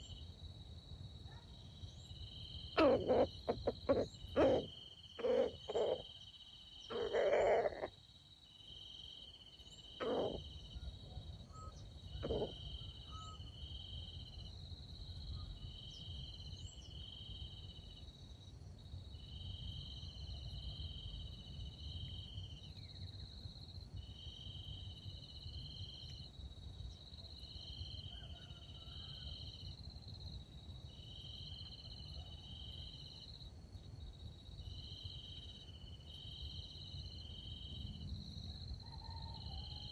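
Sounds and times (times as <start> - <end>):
insects chirping: 0.0 - 39.9
short loud insect calls: 1.9 - 8.0, 8.8 - 10.9, 11.5 - 14.0.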